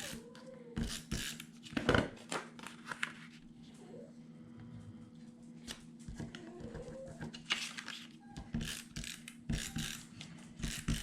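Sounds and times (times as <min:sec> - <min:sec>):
paper rustling: 0:07.3 - 0:08.2.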